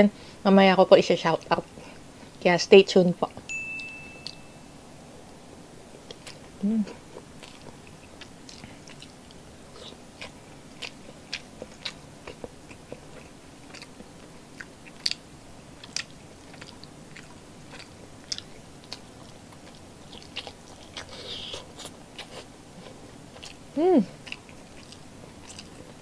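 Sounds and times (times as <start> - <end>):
person chewing food: 6.0 - 26.0.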